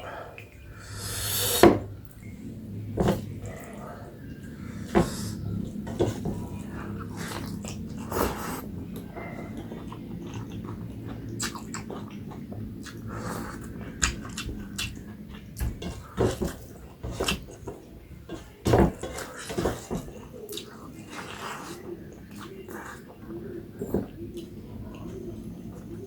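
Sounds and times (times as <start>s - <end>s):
wet chewing and smacking: 5.4s - 17.8s, 19.1s - 25.9s.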